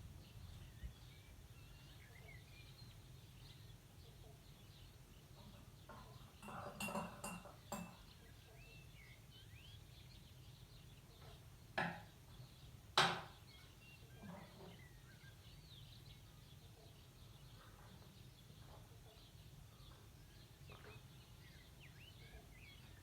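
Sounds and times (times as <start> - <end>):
faint bird chirps: 0.3 - 11.5, 13.4 - 23.0
sharp clinks and knocks: 5.4 - 8.1.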